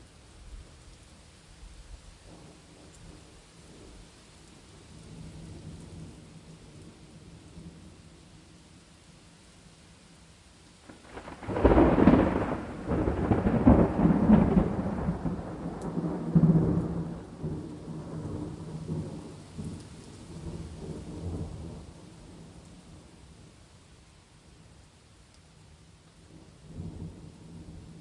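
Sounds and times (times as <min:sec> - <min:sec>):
rain pattering: 0:00.0 - 0:28.0
thunder rumbling: 0:10.9 - 0:23.5, 0:26.3 - 0:28.0.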